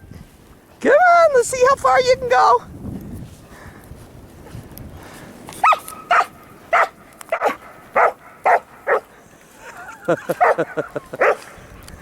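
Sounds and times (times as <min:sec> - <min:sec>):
dog barking: 0:05.6 - 0:09.1, 0:10.4 - 0:11.5.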